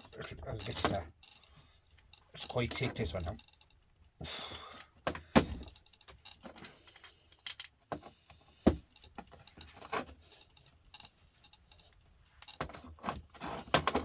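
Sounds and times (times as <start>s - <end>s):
metallic clicks and knocks: 0.0s - 4.2s.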